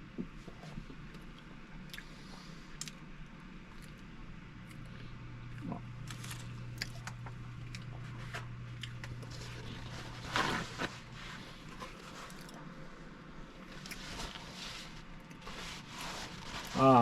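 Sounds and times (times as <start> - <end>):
person chewing soft cake: 0.1 - 16.8.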